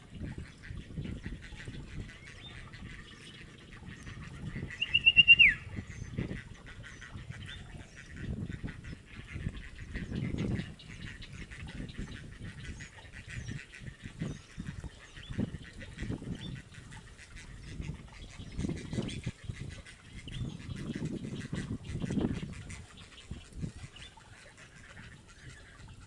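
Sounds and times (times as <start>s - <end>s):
low animal calls: 0.4s - 8.1s
high bird chirps: 4.8s - 5.7s.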